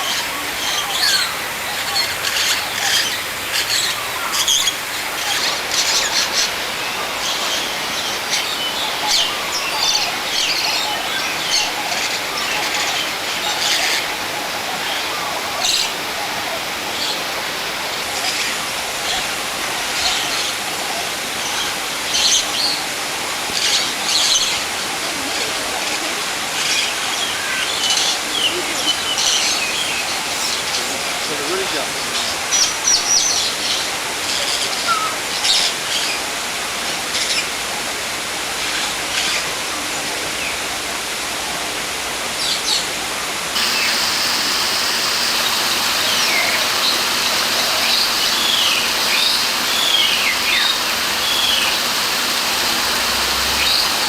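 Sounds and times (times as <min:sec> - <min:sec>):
steady background hiss: 0:00.0 - 0:54.0
birds chirping: 0:43.6 - 0:54.0.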